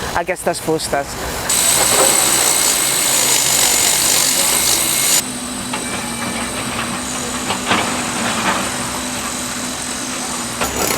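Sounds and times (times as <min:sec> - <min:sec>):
machine hum: 0:01.5 - 0:07.3.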